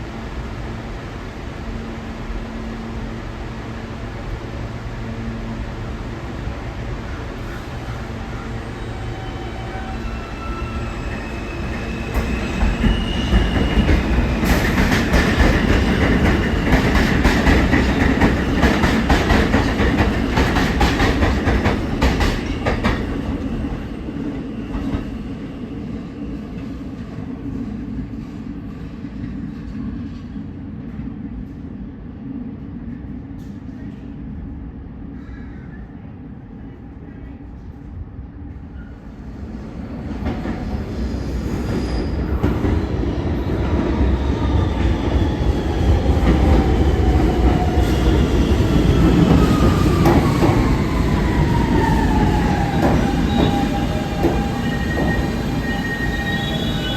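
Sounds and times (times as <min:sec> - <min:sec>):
subway train whine: 0:00.0 - 0:56.9
train wheels clattering on rails: 0:11.1 - 0:25.2, 0:43.6 - 0:56.9.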